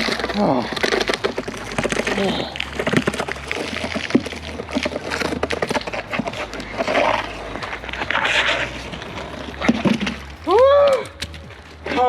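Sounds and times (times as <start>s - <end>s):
person breathing heavily: 0.0s - 5.0s.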